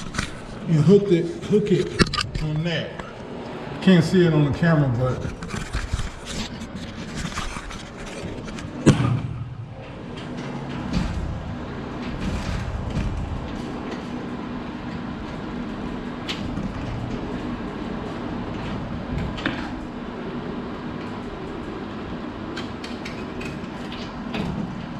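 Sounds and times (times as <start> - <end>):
steady mechanical hum: 0.0 - 24.9.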